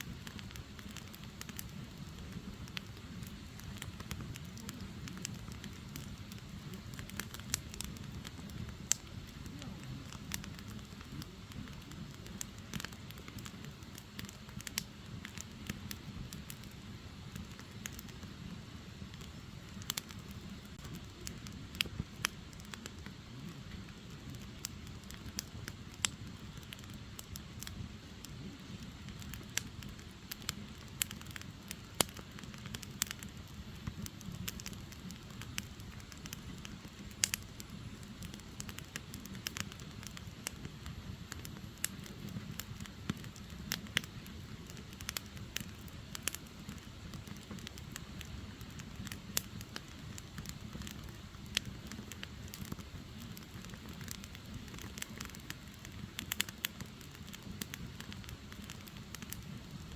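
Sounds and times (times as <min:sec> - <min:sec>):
firewood crackling and popping: 0:00.0 - 0:59.9
low fire rumble: 0:00.0 - 0:59.9.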